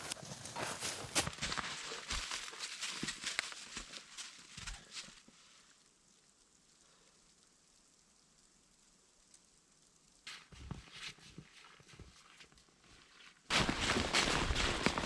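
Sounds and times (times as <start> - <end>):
crunching and rustling footsteps: 0.0 - 5.3, 13.5 - 15.0.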